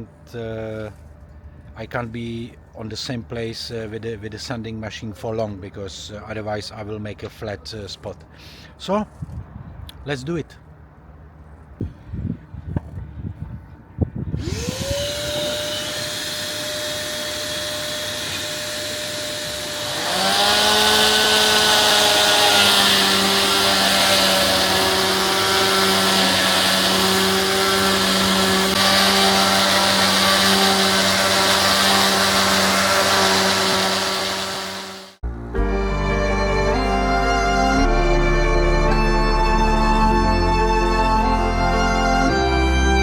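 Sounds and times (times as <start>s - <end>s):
electric sander whining: 14.3s - 43.0s
gritty hiss of sanding wood: 14.7s - 35.2s.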